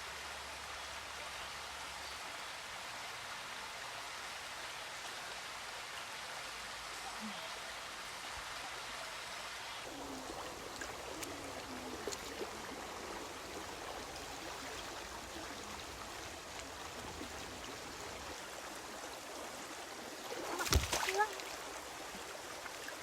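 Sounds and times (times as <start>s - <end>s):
stream flowing: 0.0s - 23.0s.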